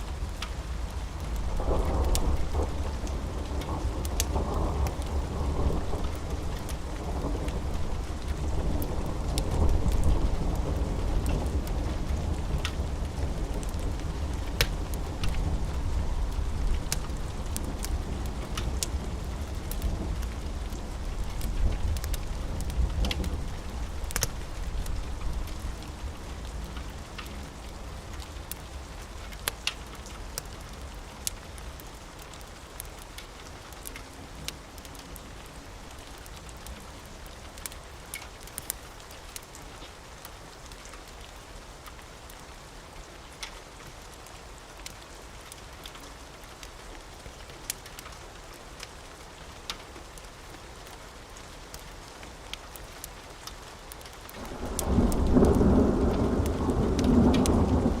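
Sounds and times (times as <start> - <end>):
steady rain: 0.0 - 58.0
low thunder rumble: 1.4 - 26.6, 54.4 - 58.0
sharp pops and crackles: 37.6 - 39.5.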